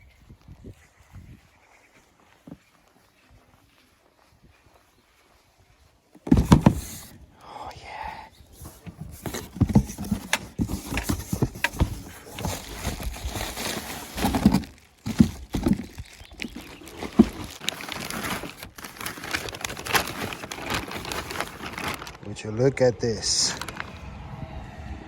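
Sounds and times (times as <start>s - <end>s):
knocks and thumps: 6.2s - 7.1s, 8.8s - 13.1s
packaging rustling: 6.2s - 7.2s, 8.6s - 22.2s, 23.5s - 23.9s
packaging being torn open: 12.6s - 22.2s.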